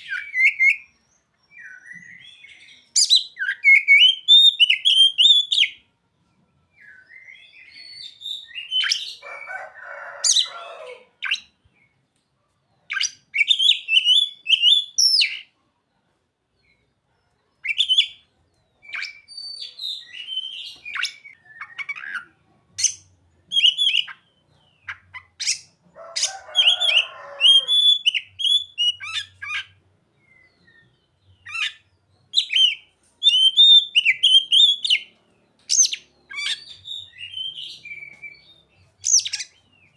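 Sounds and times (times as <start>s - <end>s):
bird singing whistled phrases: 0.0s - 0.9s, 1.5s - 5.8s, 12.9s - 15.4s, 18.9s - 22.2s, 22.8s - 24.3s, 27.5s - 31.8s, 32.4s - 35.1s, 35.7s - 39.6s
harsh raspy bird call: 20.2s - 29.8s.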